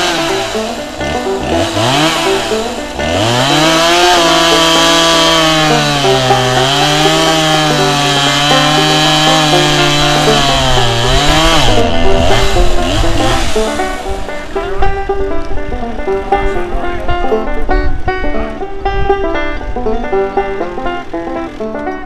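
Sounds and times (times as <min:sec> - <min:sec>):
chainsaw revving: 0:00.0 - 0:17.4
banjo music: 0:00.0 - 0:22.0.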